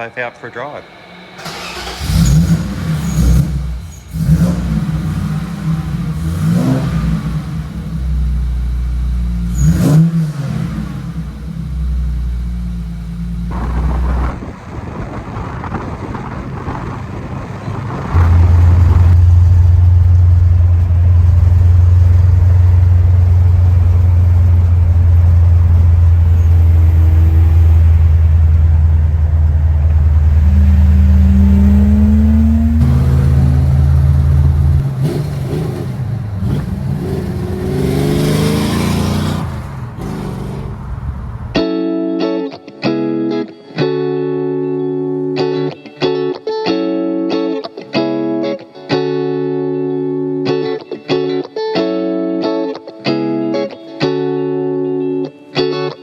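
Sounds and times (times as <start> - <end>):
car engine revving and running: 0.8 - 41.6.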